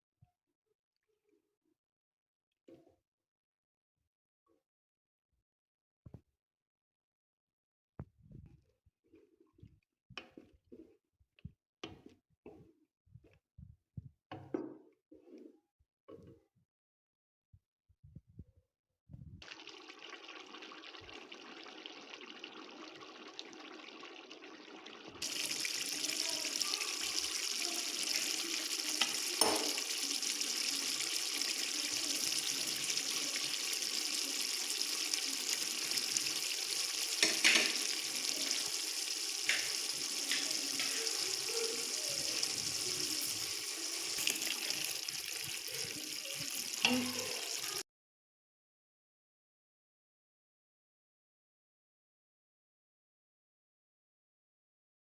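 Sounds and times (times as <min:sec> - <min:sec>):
liver sizzling in a pan: 0:19.4 - 0:47.8.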